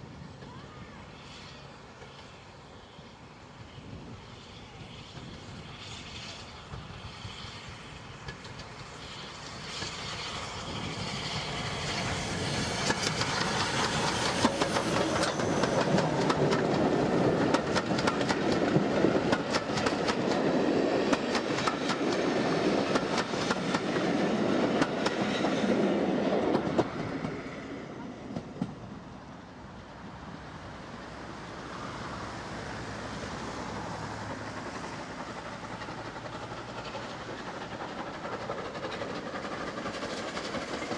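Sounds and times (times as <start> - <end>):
train wheels clicking over rail joints: 7.8 - 27.6, 34.1 - 40.9.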